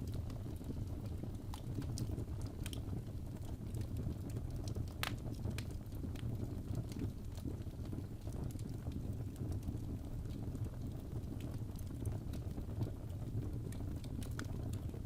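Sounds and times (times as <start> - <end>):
fireplace fire crackling and popping: 0.0 - 15.0.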